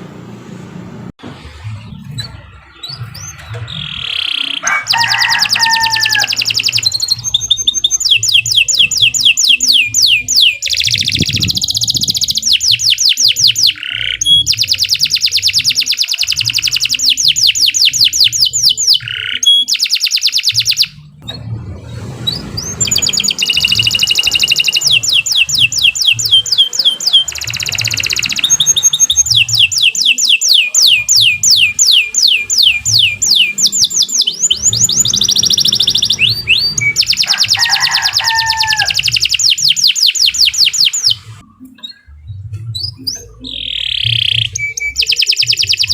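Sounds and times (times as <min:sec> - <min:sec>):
canary singing trills: 0:01.8 - 0:21.4, 0:22.2 - 0:45.9.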